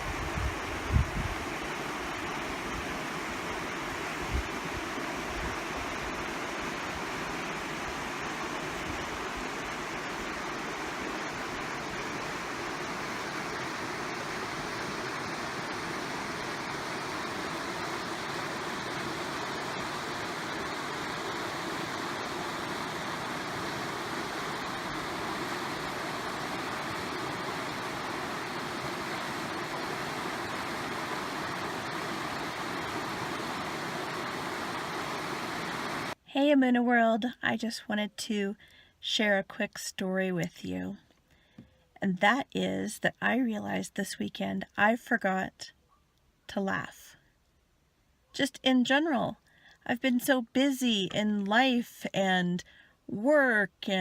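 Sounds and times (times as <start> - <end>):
wind buffeting microphone: 0.0 - 1.7
creek water rushing: 0.0 - 36.2.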